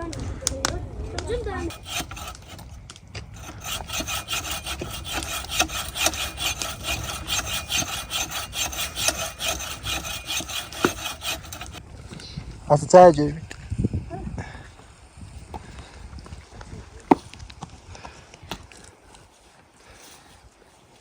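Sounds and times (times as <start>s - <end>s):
rasping strokes by hand: 1.6s - 11.8s.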